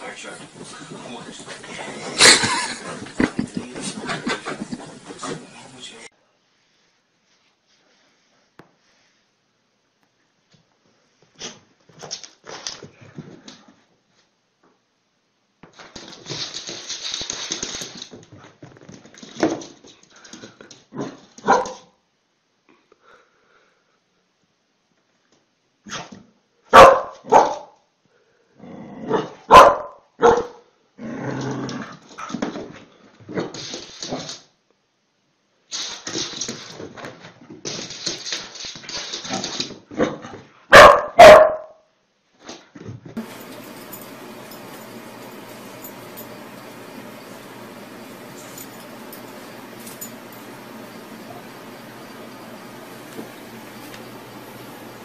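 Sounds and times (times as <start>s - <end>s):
dog scuffling: 0.0s - 6.1s
dog barking: 21.4s - 21.9s, 26.7s - 27.8s, 29.5s - 30.6s, 40.7s - 41.8s.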